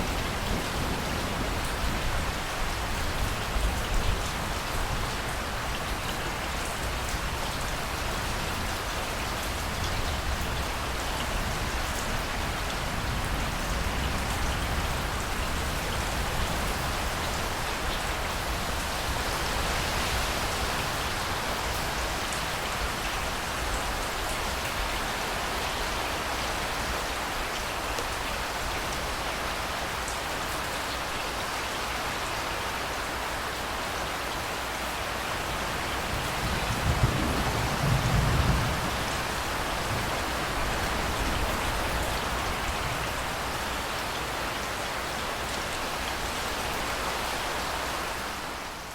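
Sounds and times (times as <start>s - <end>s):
steady rain falling: 0.0s - 48.9s
blustery wind rumble: 35.4s - 43.6s.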